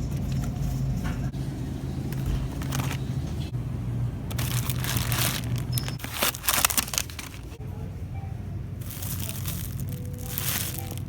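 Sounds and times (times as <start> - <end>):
car engine low hum: 0.0 - 11.0
packaging crinkling: 2.1 - 3.1, 4.3 - 7.6, 8.8 - 11.0.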